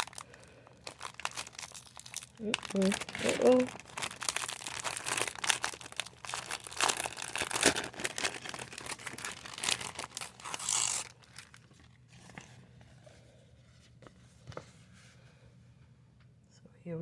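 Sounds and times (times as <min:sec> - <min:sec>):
packaging crinkling and tearing: 0:00.0 - 0:12.5.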